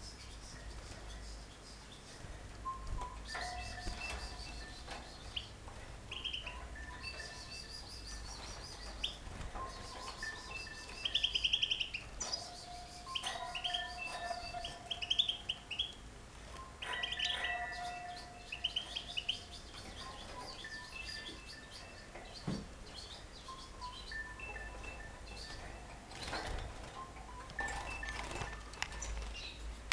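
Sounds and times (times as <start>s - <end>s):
songbirds chirping and singing: 0.0s - 29.9s.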